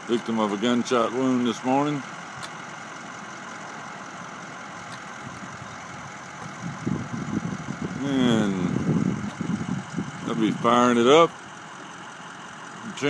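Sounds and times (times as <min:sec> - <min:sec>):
vehicle engine idling: 0:00.0 - 0:13.0
irregular low rumbling: 0:04.6 - 0:10.9.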